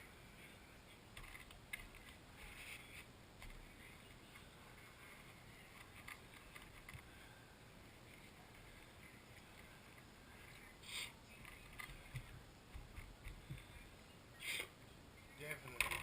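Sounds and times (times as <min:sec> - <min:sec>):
faint steady hiss: 0:00.0 - 0:16.0
scratchy rustle: 0:01.2 - 0:03.1.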